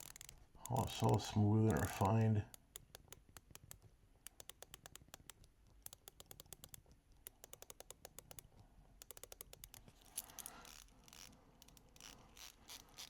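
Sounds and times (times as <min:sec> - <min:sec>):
watch bezel clicking: 0:00.0 - 0:13.0
handling rub: 0:09.8 - 0:13.0.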